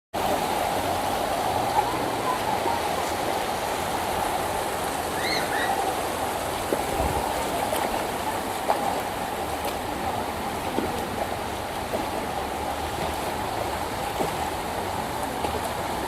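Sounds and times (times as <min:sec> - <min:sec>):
floodwater rushing: 0:00.2 - 0:16.0.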